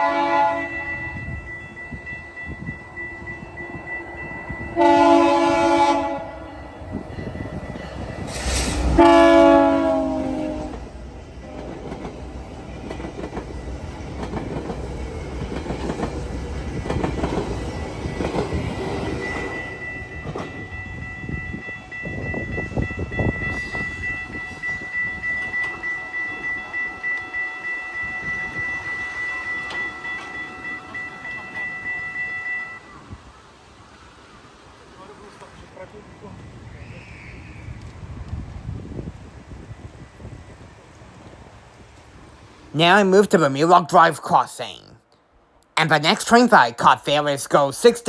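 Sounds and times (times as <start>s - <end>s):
train horn: 0.0s - 12.0s, 19.2s - 33.2s
high ringing tone: 0.3s - 10.6s, 19.0s - 33.1s
train wheels clacking on track: 6.8s - 20.7s.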